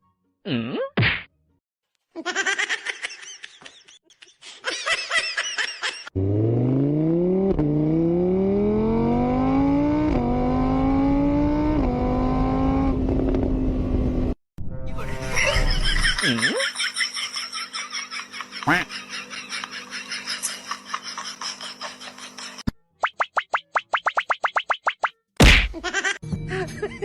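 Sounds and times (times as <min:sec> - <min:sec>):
car engine accelerating: 0:06.2 - 0:14.4.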